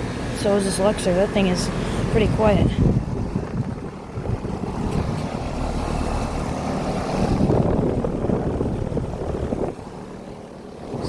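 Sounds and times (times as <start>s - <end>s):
compressor hum: 0.0s - 11.0s
fan airflow: 0.0s - 11.0s
wind on microphone: 2.1s - 10.2s.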